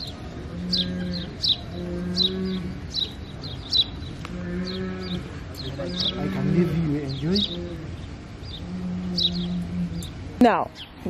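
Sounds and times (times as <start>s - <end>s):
low moo-like animal calls: 0.4s - 3.2s, 4.3s - 10.2s.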